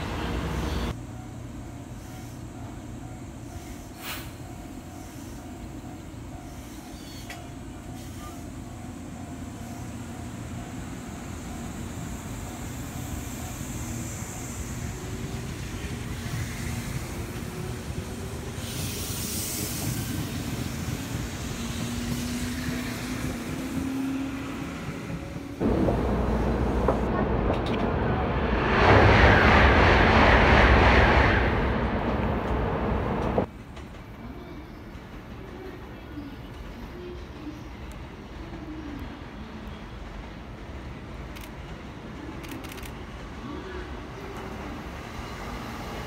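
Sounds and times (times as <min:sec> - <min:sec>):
loud rushing noise: 0:25.6 - 0:33.5.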